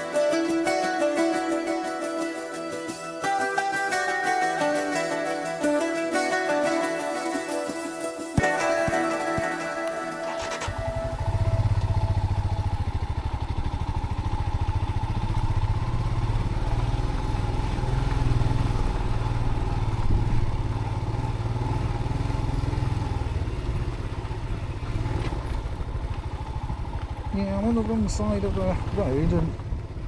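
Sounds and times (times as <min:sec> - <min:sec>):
motorcycle engine running: 0:07.7 - 0:30.0.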